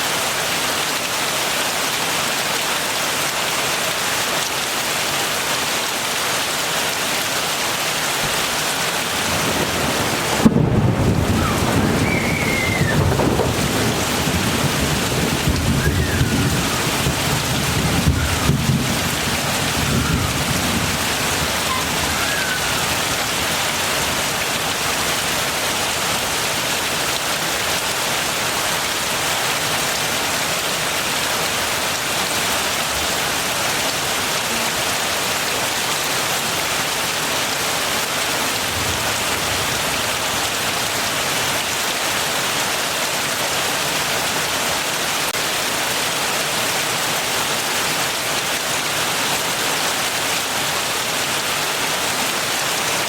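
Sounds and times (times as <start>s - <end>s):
heavy rain falling: 0.0s - 53.0s
thunder rumbling: 9.1s - 24.1s.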